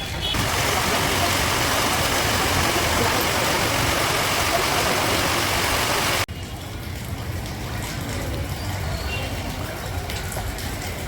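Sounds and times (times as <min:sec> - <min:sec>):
tyres rushing on wet road: 0:00.0 - 0:11.0
vehicle engines running: 0:00.4 - 0:06.3.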